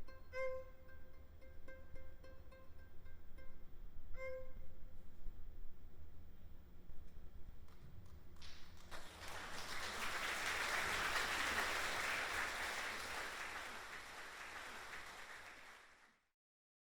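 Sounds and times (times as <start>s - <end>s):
audience applauding: 8.4s - 16.2s.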